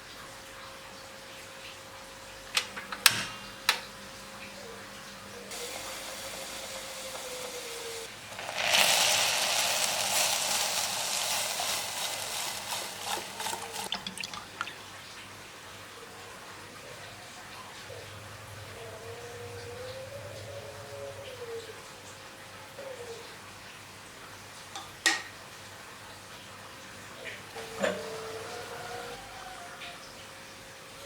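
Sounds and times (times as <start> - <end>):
water running from a tap: 5.5 - 15.3.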